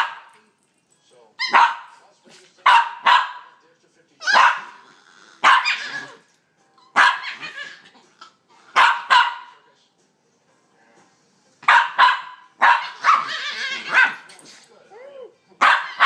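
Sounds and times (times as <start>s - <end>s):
puppies yelping: 5.4s - 6.2s, 6.9s - 8.0s, 12.6s - 14.3s.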